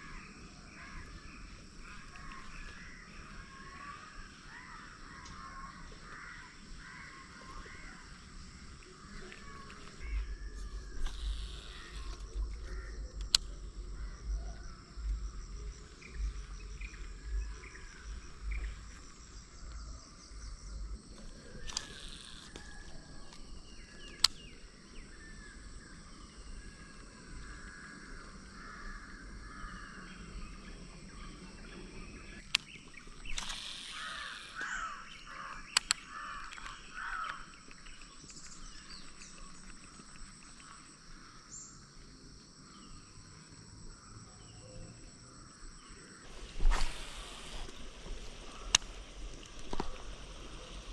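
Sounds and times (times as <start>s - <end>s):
birds calling and chirping: 0.0s - 27.6s, 29.2s - 41.9s
sharp clicks: 11.0s - 13.8s, 21.1s - 23.4s, 24.0s - 24.5s, 32.4s - 34.8s, 35.5s - 38.6s, 46.6s - 47.8s.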